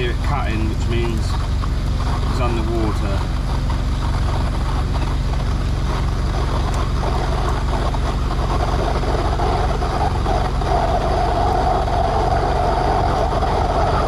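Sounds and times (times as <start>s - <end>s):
drain jetting machine engine hum: 0.0s - 14.0s.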